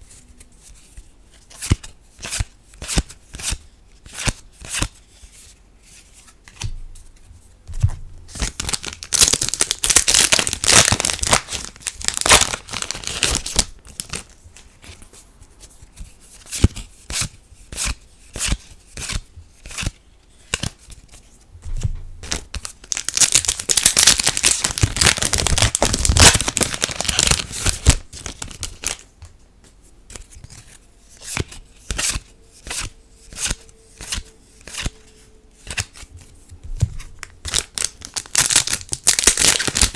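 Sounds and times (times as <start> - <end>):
foil packs tearing and crinkling: 8.4 - 14.2, 22.8 - 29.0, 37.4 - 39.9.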